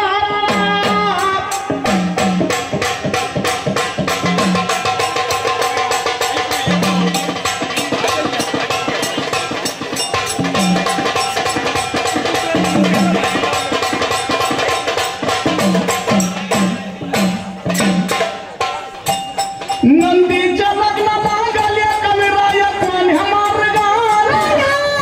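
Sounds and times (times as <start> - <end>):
hand drum percussion: 0.0 - 25.0
deep pitched drum strokes: 0.5 - 20.0.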